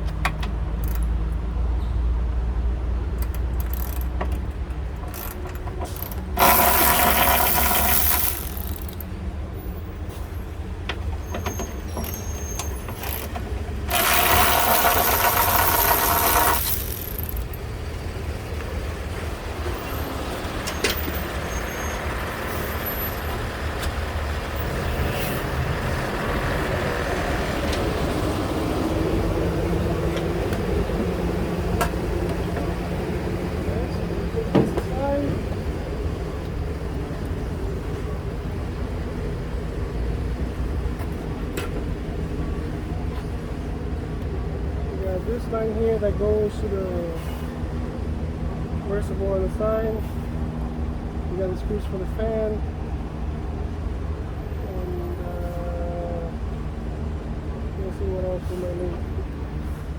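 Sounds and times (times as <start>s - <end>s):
clicks of tools and parts: 0.0s - 1.2s, 3.2s - 9.1s, 10.9s - 17.6s
low workshop rumble: 2.6s - 9.6s, 11.8s - 19.6s
power tool on bolts: 3.3s - 4.4s, 5.0s - 9.1s, 12.0s - 17.7s.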